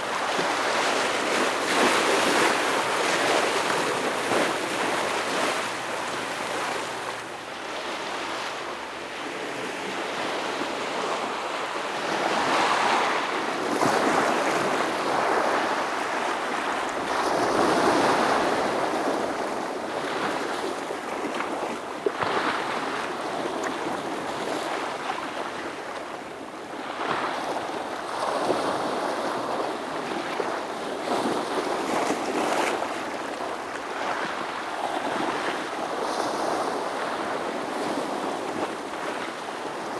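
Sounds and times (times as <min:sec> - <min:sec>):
waves breaking on rocky shore: 0:00.0 - 0:07.2.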